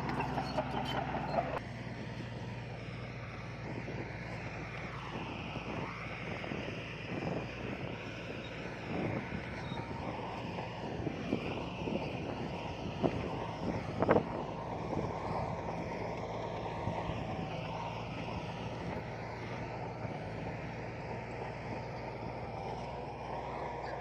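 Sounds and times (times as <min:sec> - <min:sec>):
heavy diesel engine running: 0:00.0 - 0:24.0.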